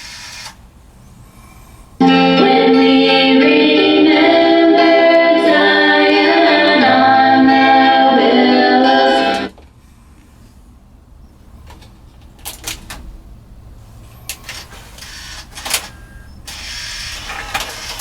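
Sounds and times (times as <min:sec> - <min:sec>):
song on radio: 0:02.0 - 0:09.6.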